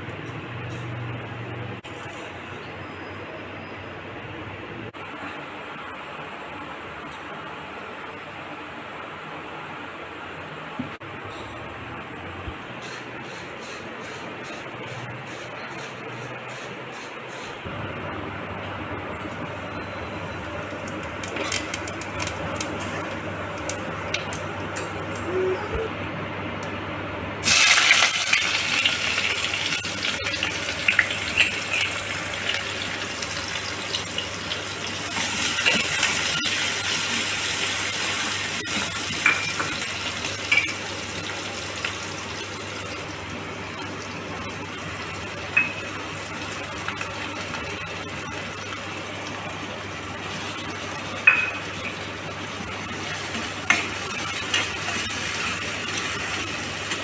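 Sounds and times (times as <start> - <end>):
vegetables sizzling in hot oil: 27.4 - 57.0.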